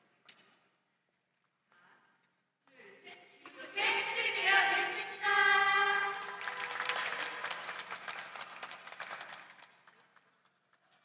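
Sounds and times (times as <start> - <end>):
audience cheering and clapping: 5.3 - 9.8.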